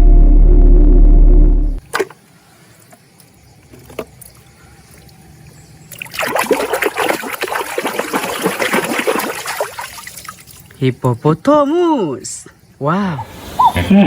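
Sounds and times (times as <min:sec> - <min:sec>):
water trickling and splashing: 0:01.8 - 0:11.0.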